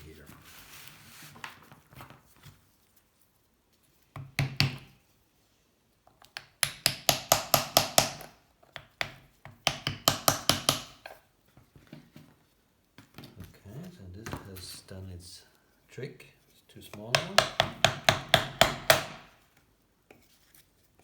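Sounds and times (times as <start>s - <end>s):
knocking wooden wedges into metal: 9.0s - 11.1s, 16.9s - 19.4s.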